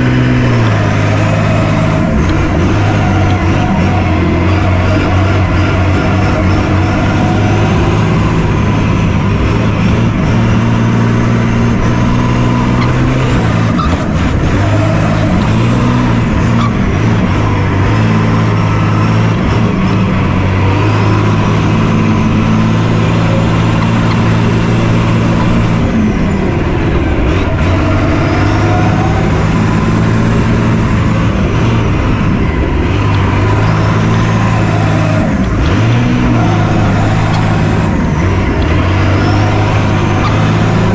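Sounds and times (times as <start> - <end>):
vehicle engine running: 0.0 - 40.9.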